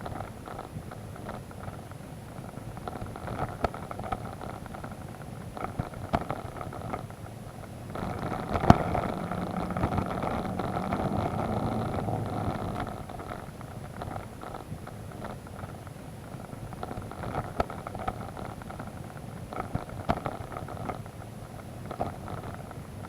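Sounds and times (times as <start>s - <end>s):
motorcycle engine running: 5.9s - 15.4s
knocks and clicks from rough road: 7.9s - 15.4s.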